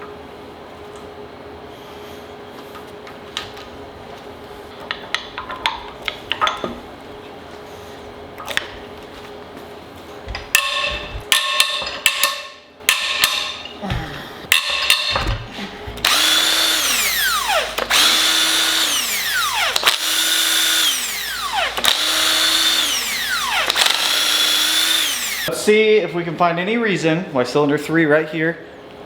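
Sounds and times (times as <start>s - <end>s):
cordless power tool whirring: 16.0s - 25.5s.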